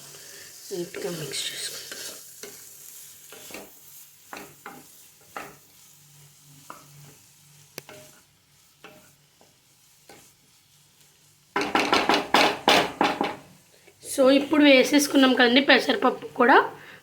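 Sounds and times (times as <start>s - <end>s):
faint sizzle: 0.0s - 17.0s
utensil scraping a pan: 1.0s - 13.4s.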